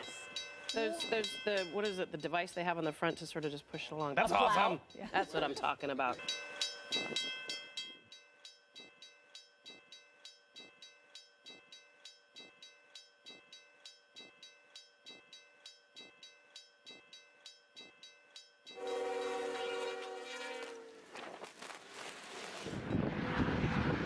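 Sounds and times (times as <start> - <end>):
level-crossing bell ringing: 0.0 - 3.6, 4.2 - 20.2
locomotive horn: 18.8 - 21.2.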